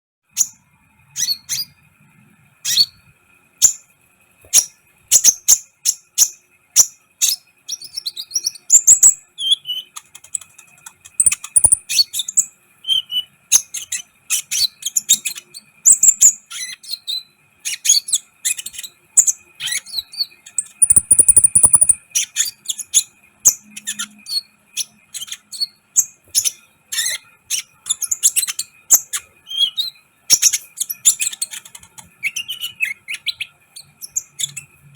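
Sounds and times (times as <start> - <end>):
bird chirping and trilling: 0.3 - 1.9, 2.6 - 34.9
faint steady tone: 18.2 - 30.8.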